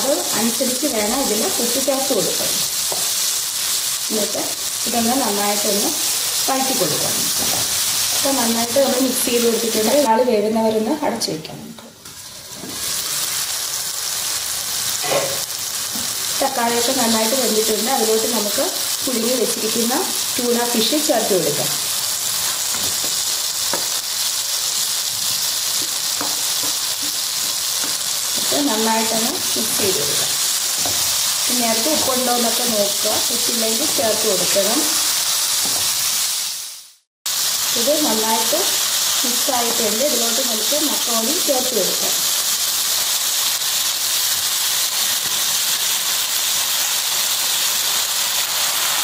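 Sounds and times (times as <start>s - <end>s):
food sizzling in a frying pan: 0.0s - 11.3s, 11.9s - 49.0s.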